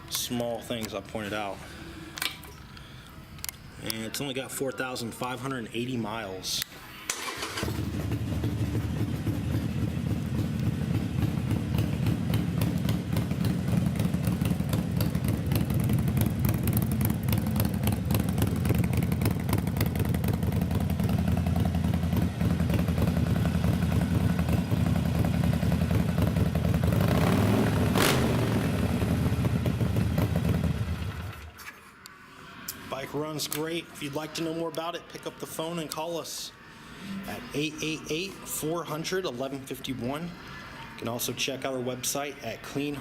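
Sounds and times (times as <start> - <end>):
motorcycle engine idling: 7.5 - 31.3.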